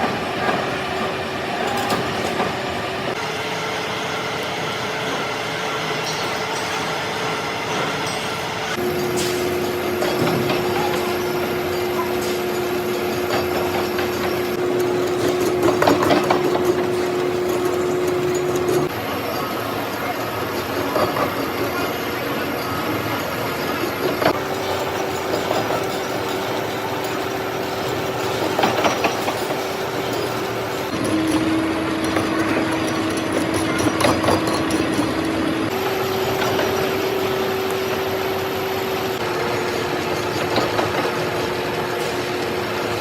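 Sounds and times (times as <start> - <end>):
machinery humming: 0.0 - 43.0
mechanical noise with knocks: 8.8 - 18.9, 28.2 - 37.0.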